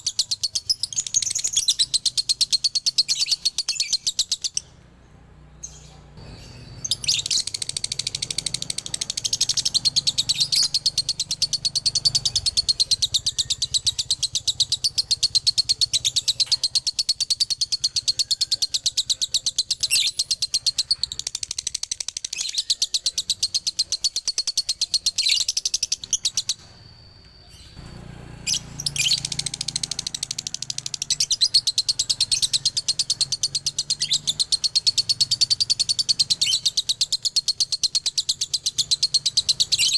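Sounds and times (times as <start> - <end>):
lovebird chattering song: 0.0 - 4.8, 5.6 - 39.9.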